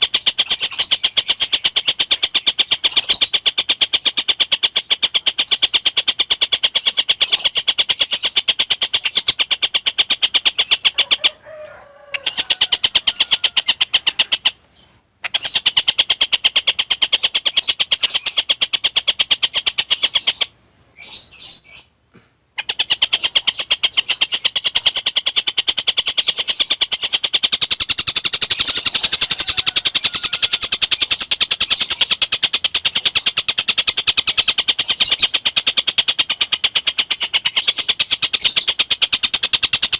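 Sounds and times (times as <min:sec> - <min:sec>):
kingfisher chattering call: 0:12.1 - 0:14.5, 0:26.2 - 0:33.2.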